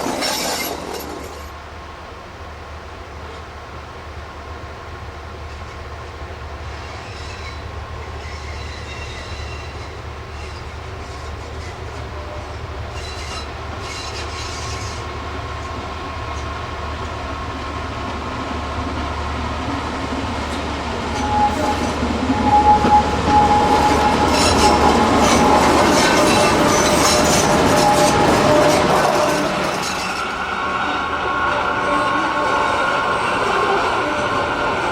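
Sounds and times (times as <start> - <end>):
steel wheels squealing: 0.0 - 1.5, 6.7 - 15.2, 20.5 - 34.9
train approaching: 0.0 - 34.9.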